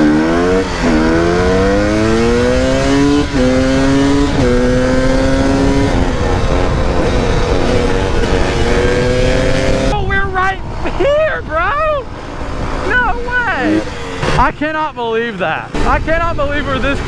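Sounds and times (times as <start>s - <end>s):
dirt bike engine accelerating: 0.0s - 17.0s.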